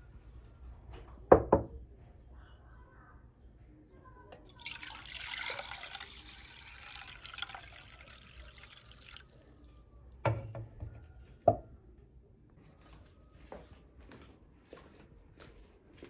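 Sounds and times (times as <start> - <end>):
water running from tap: 4.5 - 9.4.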